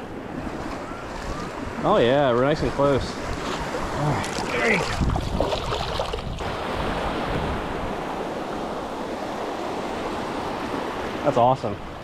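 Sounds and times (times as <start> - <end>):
wind buffeting microphone: 0.0 - 11.1
ocean surf washing onto beach: 0.0 - 12.0.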